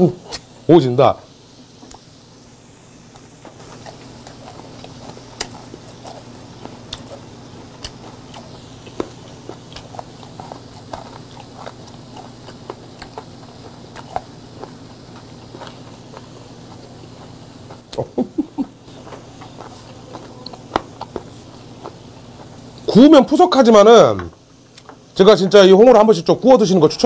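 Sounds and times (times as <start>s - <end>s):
steady low hum: 0.0s - 27.0s
person chewing with wet smacks: 3.1s - 22.9s.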